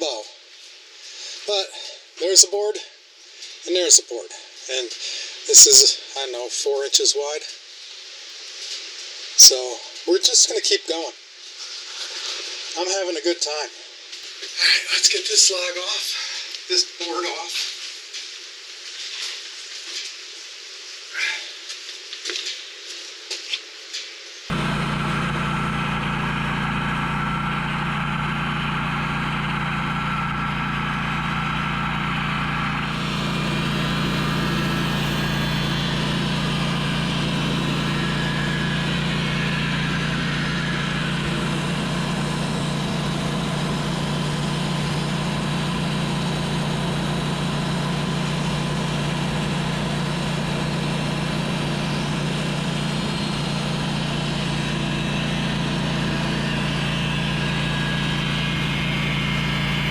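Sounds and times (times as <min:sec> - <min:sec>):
sawmill engine running: 0:24.5 - 0:59.9.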